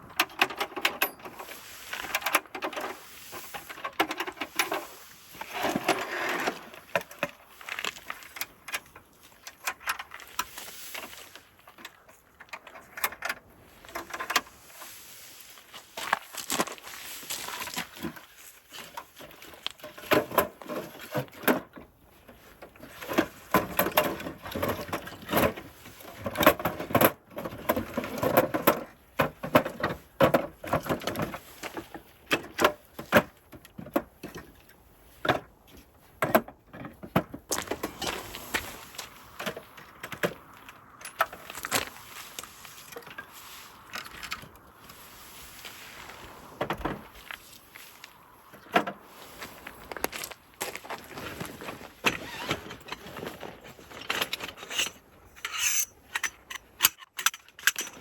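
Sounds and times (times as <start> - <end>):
objects knocking and rattling: 22.8 - 34.5.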